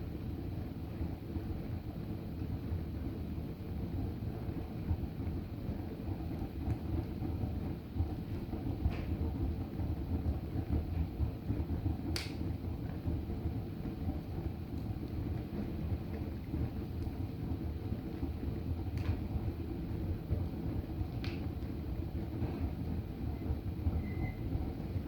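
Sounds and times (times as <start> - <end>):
fire burning rumble: 0.0 - 25.0
fire crackling and popping: 0.9 - 25.0.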